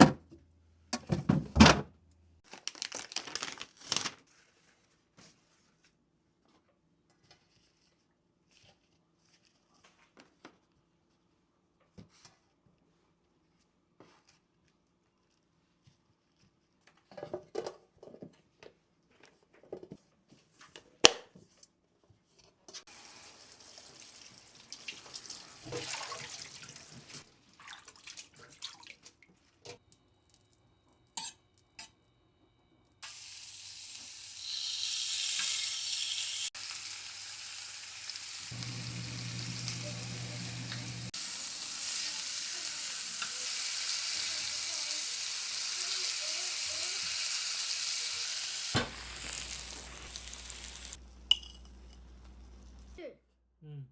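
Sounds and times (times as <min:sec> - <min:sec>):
food sizzling in frying pan: 0:22.9 - 0:27.2, 0:33.0 - 0:53.0
tap water running: 0:22.9 - 0:29.1, 0:33.0 - 0:52.9.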